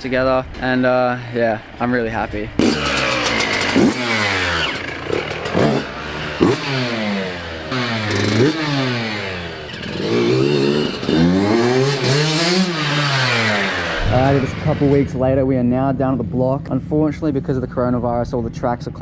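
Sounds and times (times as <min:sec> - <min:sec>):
two-stroke engine revving: 0:02.6 - 0:15.2.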